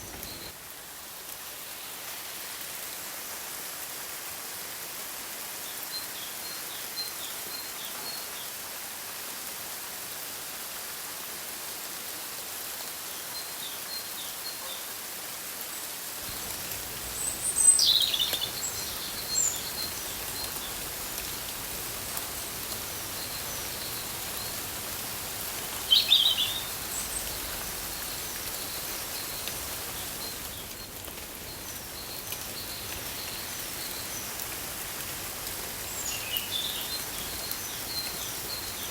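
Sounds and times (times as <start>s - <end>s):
steady hiss: 0.0s - 14.2s, 15.6s - 38.9s
downward sweeping bird calls: 16.2s - 21.7s, 22.4s - 34.4s
high bird chirps: 25.8s - 27.4s.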